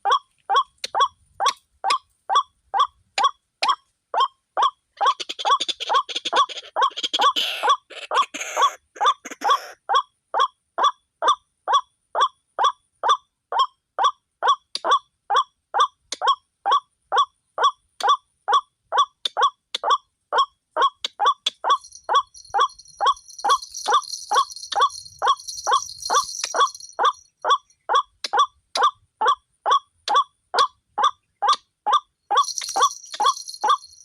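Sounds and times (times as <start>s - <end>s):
waterhen croaking call: 0.0s - 9.8s
high jingling rattle: 21.6s - 27.8s, 32.3s - 34.0s.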